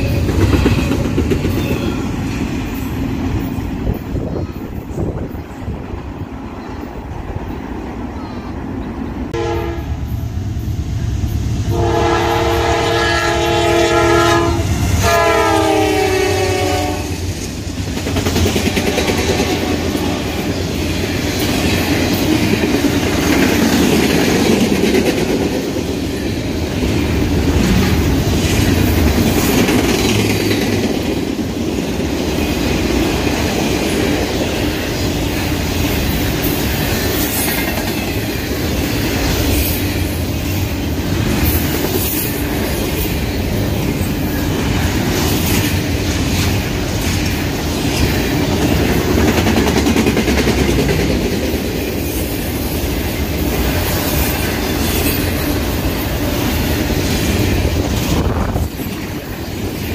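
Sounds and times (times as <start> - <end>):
locomotive air horn blasts: 9.3 - 10.0, 11.7 - 17.2.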